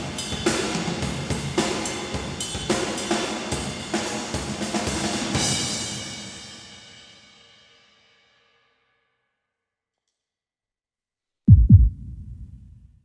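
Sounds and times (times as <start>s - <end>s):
drum kit groove with cymbals: 0.0s - 7.3s.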